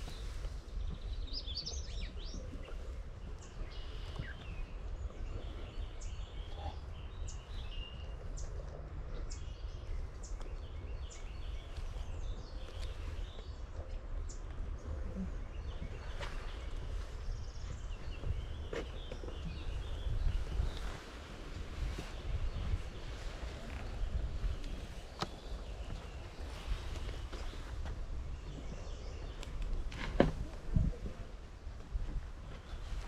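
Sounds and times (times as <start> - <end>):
songbirds chirping and trilling: 0.0 - 33.0
steady low rumble: 0.0 - 33.0.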